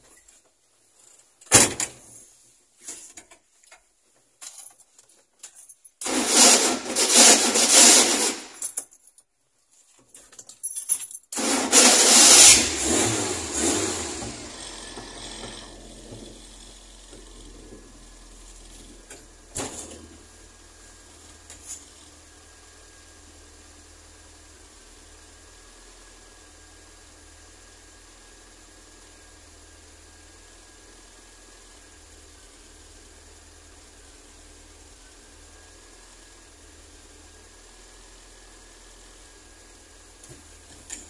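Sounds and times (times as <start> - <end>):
engine cranking: 11.4 - 17.9
car engine idling: 12.1 - 41.0.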